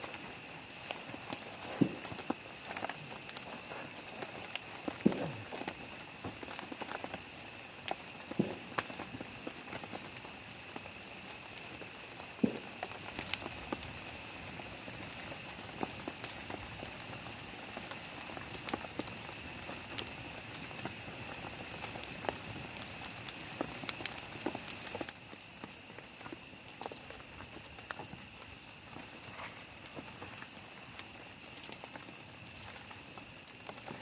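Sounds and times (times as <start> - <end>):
rain on plastic tarp: 0.0 - 34.0.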